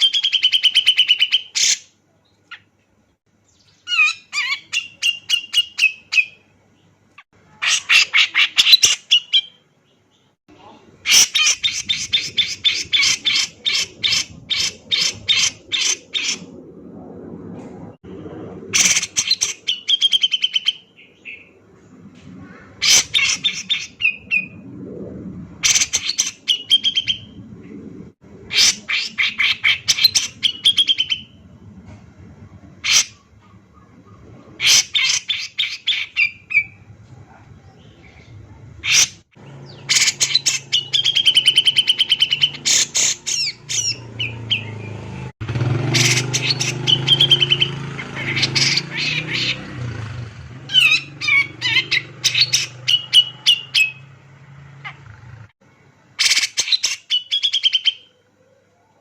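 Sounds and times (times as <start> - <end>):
bulbul singing sharp notes: 39.6 - 49.6.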